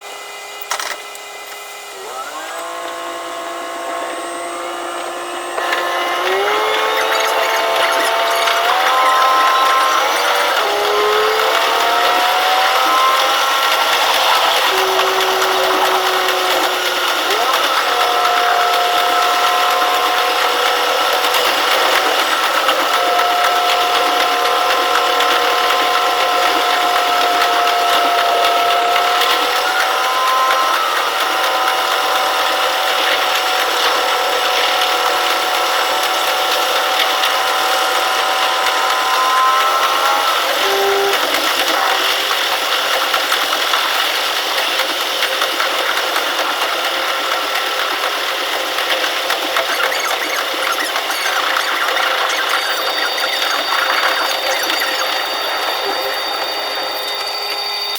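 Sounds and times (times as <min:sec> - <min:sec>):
railcar whine: 0:00.8 - 0:35.5, 0:37.2 - 0:57.9
diesel railcar running noise: 0:03.7 - 0:57.9.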